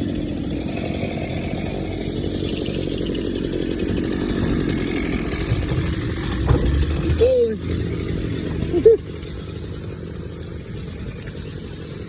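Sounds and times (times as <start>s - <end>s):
chainsaw cutting tree: 0.0s - 12.0s.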